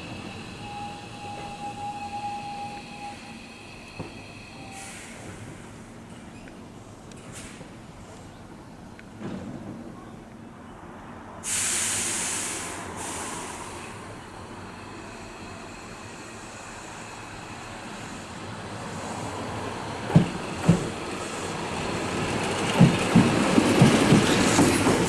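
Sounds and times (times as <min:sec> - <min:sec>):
train low running hum: 0:00.0 - 0:11.4
air brake hiss: 0:00.1 - 0:05.9, 0:07.3 - 0:07.7, 0:11.4 - 0:14.0.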